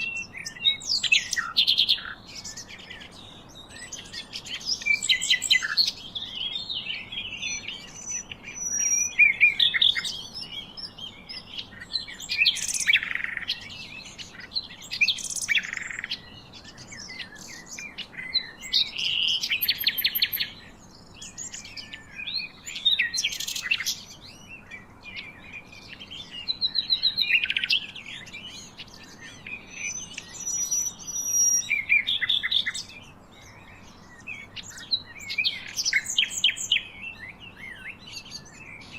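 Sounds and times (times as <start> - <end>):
birds chirping and singing: 0.0 - 38.9
faint steady hiss: 0.0 - 38.9.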